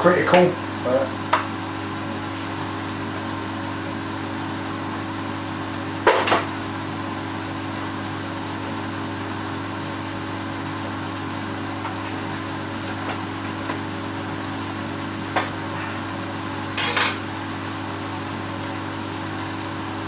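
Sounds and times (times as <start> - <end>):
table saw humming: 0.0 - 20.0.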